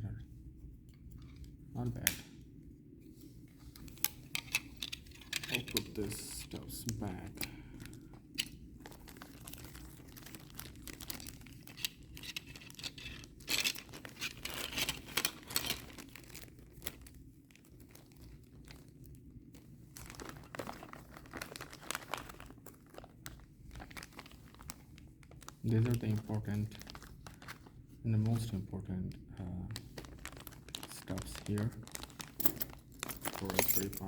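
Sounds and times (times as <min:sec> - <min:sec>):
packaging rustling and clicking: 0:06.8 - 0:19.1, 0:19.9 - 0:27.7, 0:29.7 - 0:34.0.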